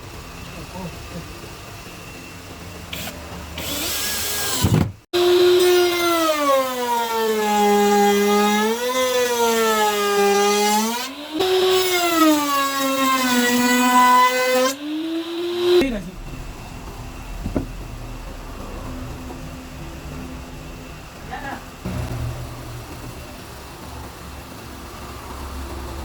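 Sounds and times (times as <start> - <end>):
router motor whining: 0.4 - 7.4
low hum: 15.8 - 25.7.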